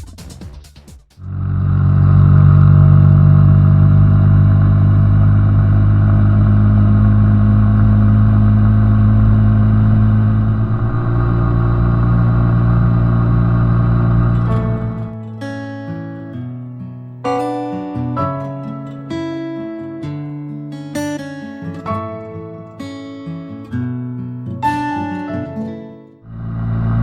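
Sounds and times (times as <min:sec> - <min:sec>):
motorcycle engine running: 0:01.2 - 0:15.0, 0:26.3 - 0:27.0.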